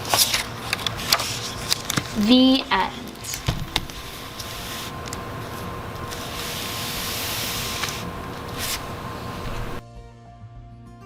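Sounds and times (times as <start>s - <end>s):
faint steady hum: 0.0s - 9.8s
rustling and hissing: 3.3s - 9.8s.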